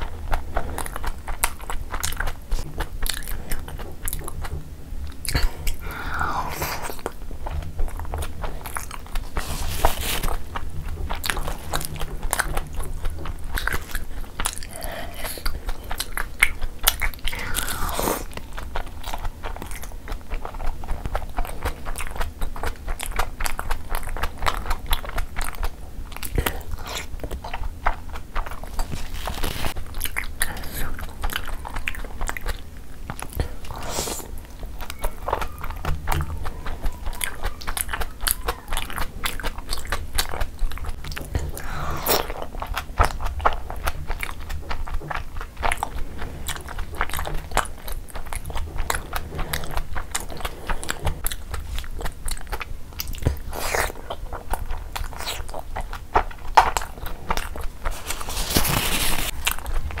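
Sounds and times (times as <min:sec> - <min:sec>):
person chewing food: 0:00.0 - 1:00.0
tissue rustling: 0:57.9 - 0:59.3.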